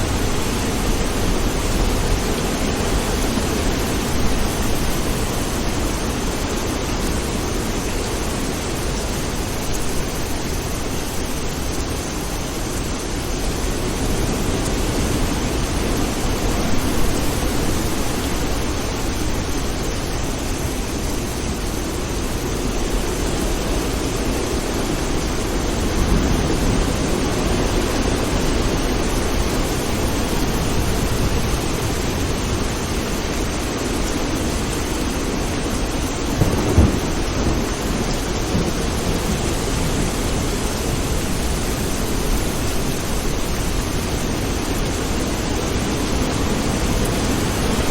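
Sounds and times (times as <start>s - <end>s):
steady rain: 0.0s - 47.9s.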